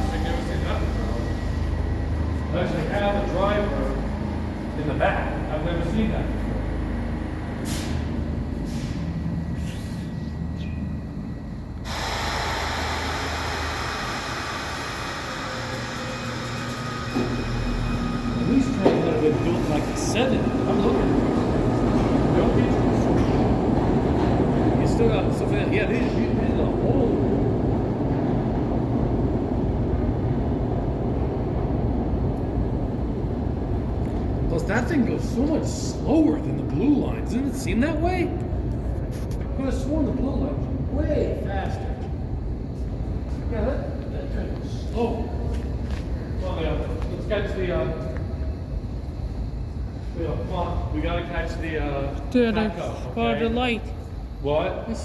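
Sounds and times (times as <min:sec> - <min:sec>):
train low rumble: 0:00.0 - 0:55.0
short hisses: 0:07.6 - 0:10.1
loud steady rush of noise: 0:10.0 - 0:36.5.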